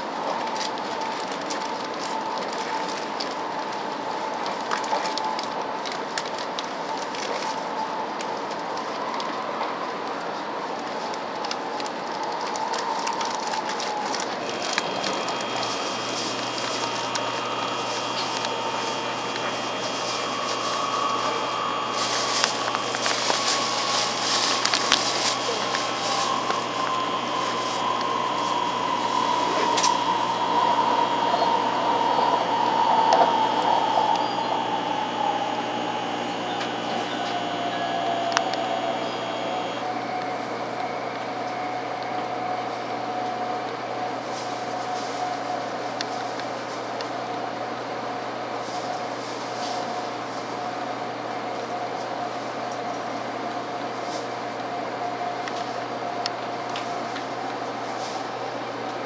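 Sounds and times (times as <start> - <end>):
train car running hum: 0.0 - 59.0
train running rumble: 14.3 - 42.2
motor whine falling in pitch: 14.4 - 43.2.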